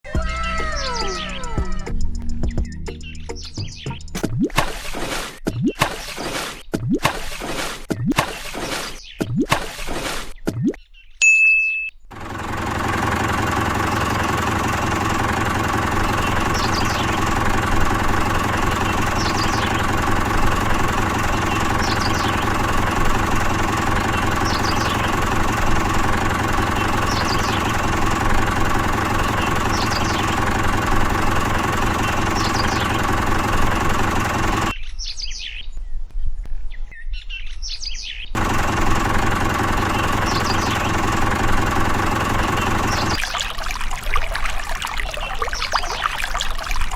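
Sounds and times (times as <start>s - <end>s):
short high chirp: 11.2s - 12.0s
small water pump motor running: 12.1s - 34.7s, 38.4s - 46.9s.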